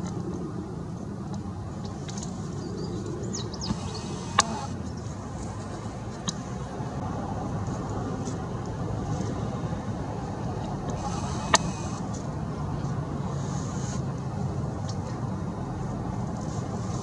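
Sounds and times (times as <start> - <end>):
distant road traffic rumble: 0.0 - 17.0
small birds chirping: 2.6 - 4.8.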